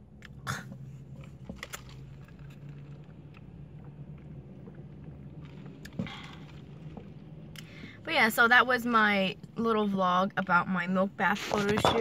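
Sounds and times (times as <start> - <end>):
car idling inside cabin: 0.0 - 11.7.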